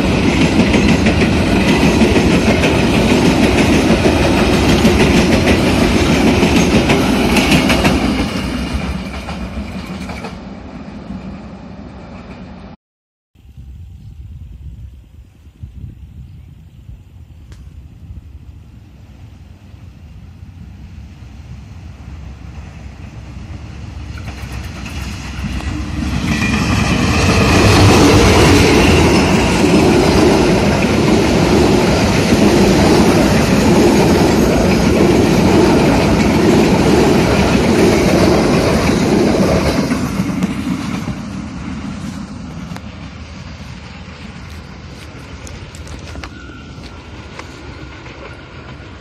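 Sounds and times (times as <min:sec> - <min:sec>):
wheels beating on rails: 0:00.0 - 0:10.4, 0:23.0 - 0:49.0
train passing close by: 0:00.0 - 0:12.8, 0:14.2 - 0:49.0.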